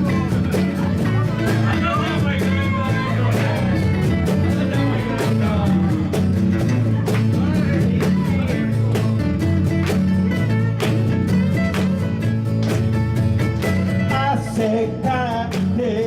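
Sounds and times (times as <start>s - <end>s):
bass line: 0.0s - 16.0s
drum beat: 0.0s - 16.0s
guitar: 0.0s - 16.0s.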